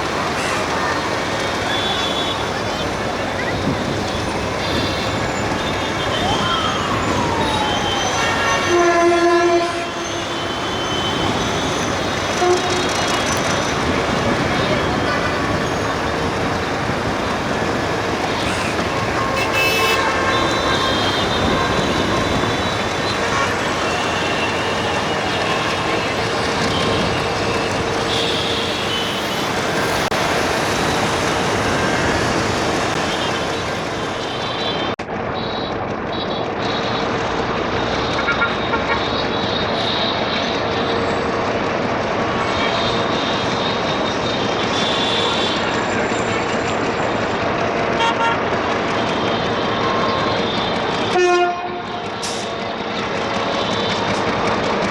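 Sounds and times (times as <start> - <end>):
freight train passing: 0.0 - 54.9
high-pitched train horn toot: 7.7 - 13.8, 18.4 - 34.9, 51.1 - 52.3.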